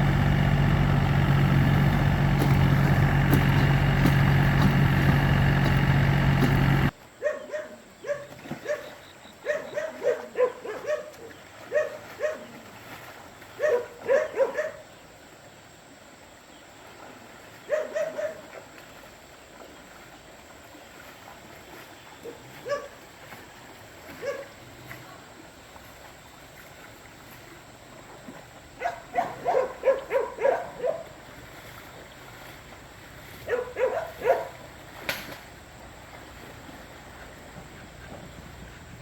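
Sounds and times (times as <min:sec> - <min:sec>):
tractor engine running: 0:00.0 - 0:07.0
dog barking: 0:07.2 - 0:12.5, 0:13.6 - 0:14.8, 0:17.7 - 0:18.4, 0:22.2 - 0:23.0, 0:24.2 - 0:24.5, 0:28.8 - 0:31.1, 0:33.4 - 0:34.6.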